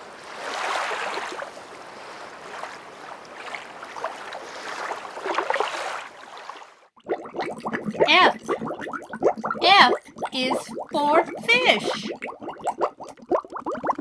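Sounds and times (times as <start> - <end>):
aquarium water bubbling: 3.2 - 14.0.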